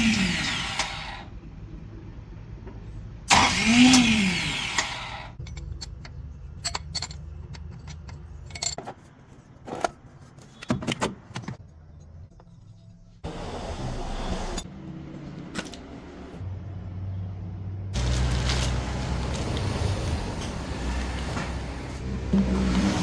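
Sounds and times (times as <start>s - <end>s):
starter motor whine: 0.0s - 1.3s, 3.3s - 5.4s.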